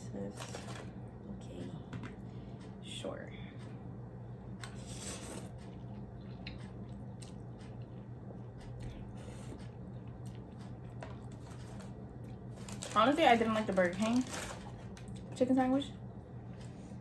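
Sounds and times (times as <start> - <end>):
low electrical hum: 0.0 - 17.0
person chewing food: 4.7 - 12.8.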